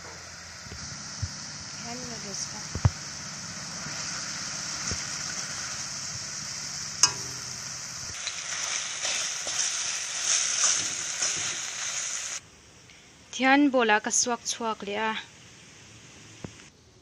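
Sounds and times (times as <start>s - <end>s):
noodles sizzling in a pan: 0.0s - 12.4s.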